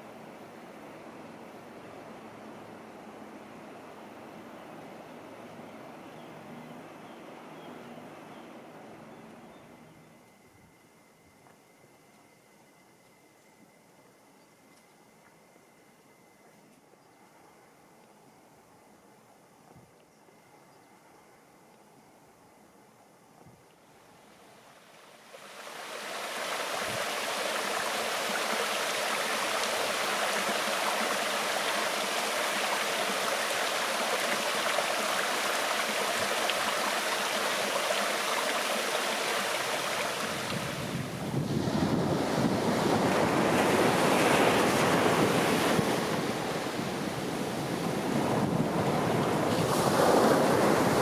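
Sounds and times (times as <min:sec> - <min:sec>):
rushing water: 0:24.5 - 0:51.0.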